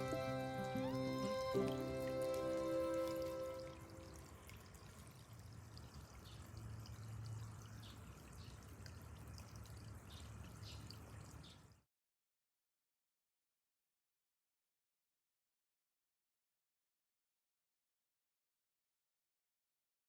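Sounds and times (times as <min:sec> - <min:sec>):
water trickling and splashing: 0:00.0 - 0:11.9.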